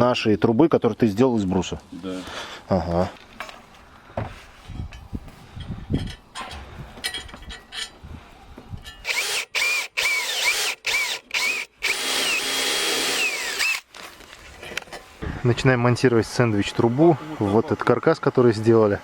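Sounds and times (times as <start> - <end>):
electric drill whining: 9.0 - 13.9.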